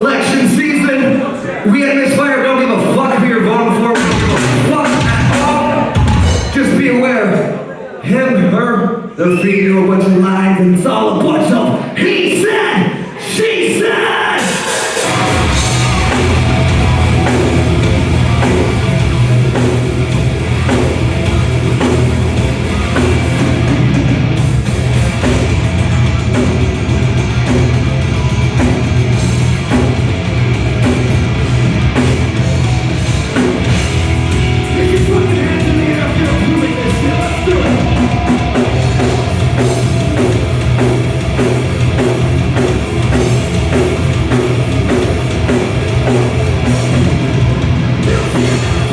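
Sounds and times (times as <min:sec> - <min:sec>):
heavy rock music: 0:02.1 - 0:07.5, 0:13.7 - 0:48.9
drum kit: 0:03.7 - 0:07.6, 0:14.4 - 0:48.9.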